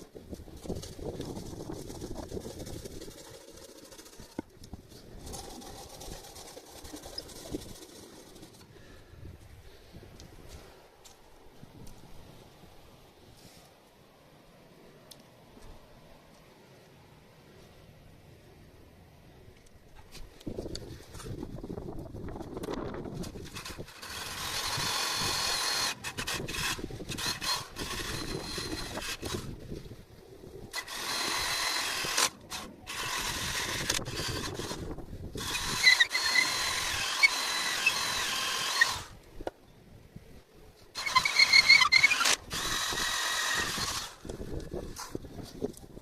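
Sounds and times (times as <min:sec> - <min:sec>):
power drill whirring and whining: 0:23.4 - 0:29.5, 0:30.7 - 0:39.2, 0:41.0 - 0:44.4.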